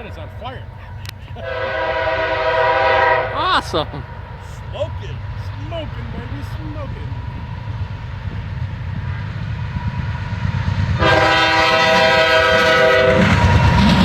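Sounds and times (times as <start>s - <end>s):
diesel locomotive rumbling: 0.0s - 14.0s
train air horn blast: 1.3s - 7.2s, 11.0s - 13.9s.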